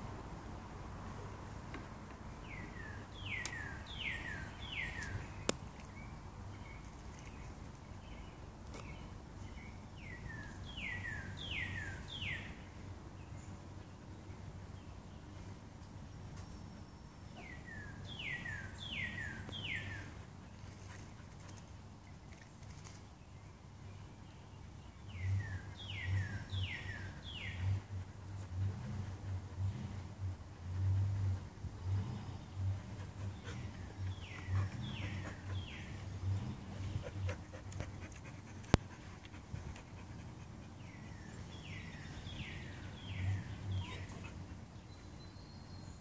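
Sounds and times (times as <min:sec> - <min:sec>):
low rumbling: 0:24.9 - 0:40.1.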